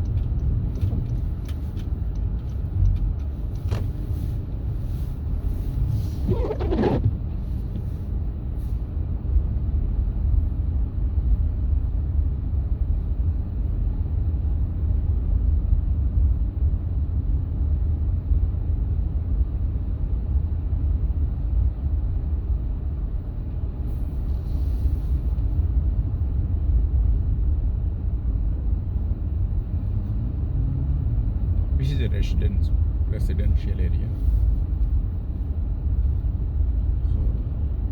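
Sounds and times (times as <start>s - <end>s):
car road rumble: 0.0s - 37.9s
falling squeak: 6.3s - 7.1s.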